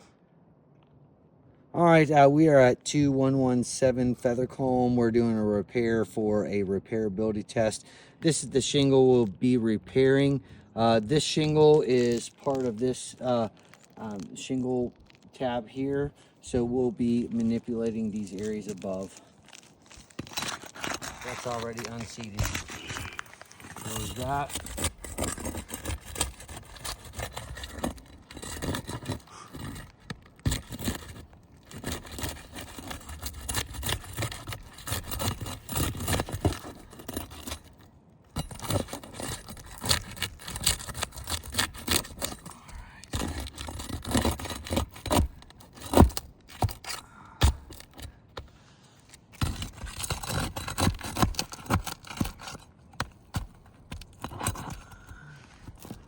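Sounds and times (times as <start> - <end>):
roof shingles scraping and crackling: 7.9 - 56.0.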